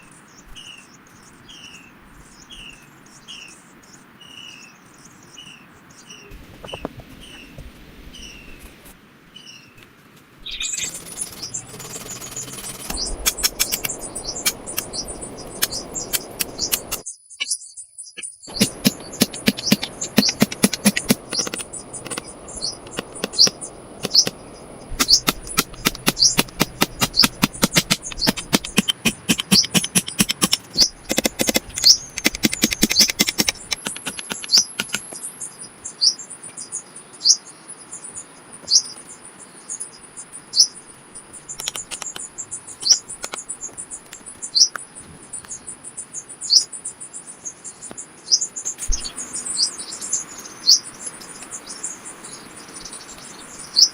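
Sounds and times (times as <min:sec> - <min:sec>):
small bird chirping: 0:00.0 - 0:08.8, 0:10.4 - 0:53.9
sharp clicks and knocks: 0:10.9 - 0:14.9, 0:18.5 - 0:35.2, 0:41.6 - 0:42.3.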